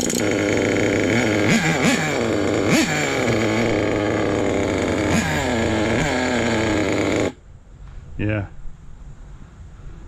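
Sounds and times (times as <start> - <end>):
engine throttle blips: 0.0 - 7.4
model truck engine idling: 0.0 - 7.4.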